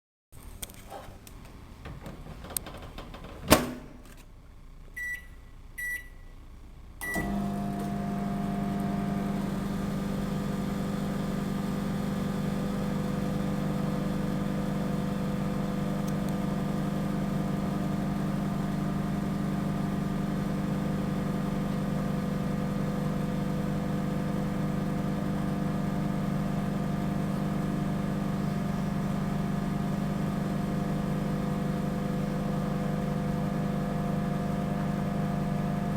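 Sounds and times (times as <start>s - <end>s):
microwave oven humming: 4.6s - 35.9s
keypad beeps: 5.0s - 6.2s.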